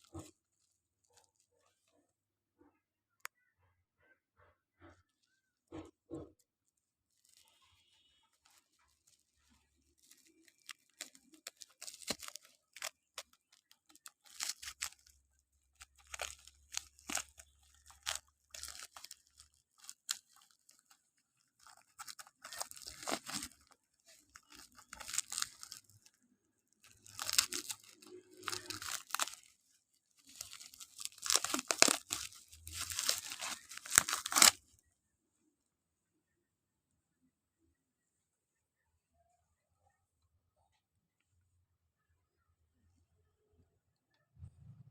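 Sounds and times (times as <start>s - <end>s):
packaging crinkling and tearing: 0.0s - 2.0s, 5.7s - 34.7s.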